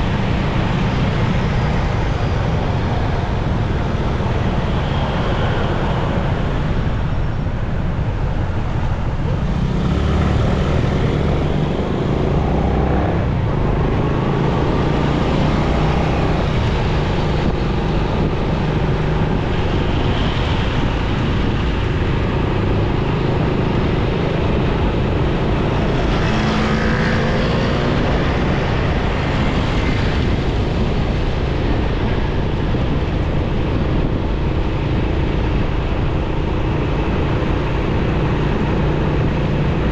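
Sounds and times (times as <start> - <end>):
motorcycle engine rumble: 0.0 - 26.4
passing vehicle engines: 0.0 - 39.9
wind: 0.0 - 39.9.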